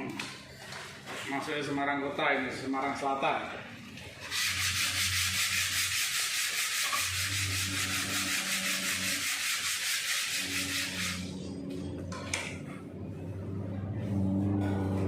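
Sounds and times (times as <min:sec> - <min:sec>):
sandpaper sanding body filler: 0:04.2 - 0:11.3.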